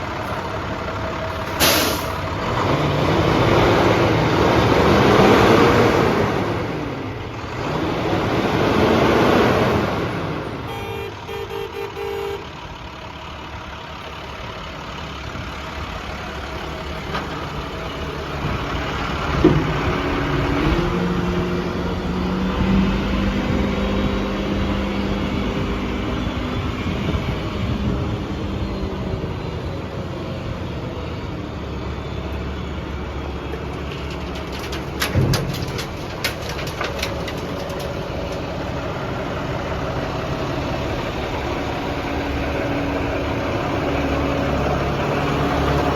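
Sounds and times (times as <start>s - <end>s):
diesel engine running: 0.0s - 45.9s
clicks and knocks: 33.5s - 38.6s.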